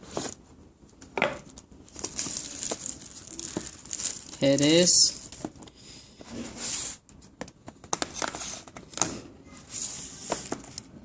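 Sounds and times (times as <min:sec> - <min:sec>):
packaging rustling and sliding: 0:01.9 - 0:05.6.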